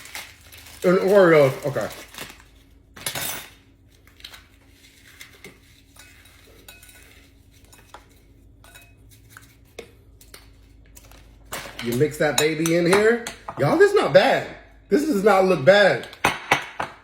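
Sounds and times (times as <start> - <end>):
spoon scraping a bowl: 4.9 - 10.4.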